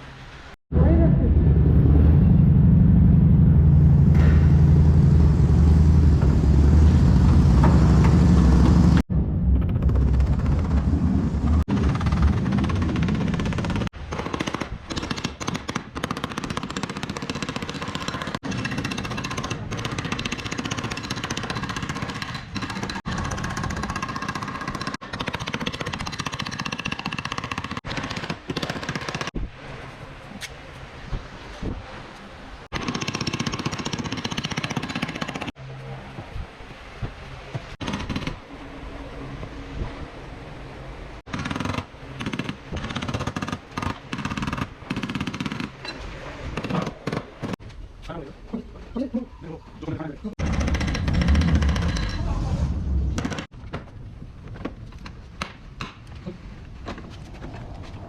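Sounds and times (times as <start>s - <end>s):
rapid mechanical hammering: 50.4s - 52.1s.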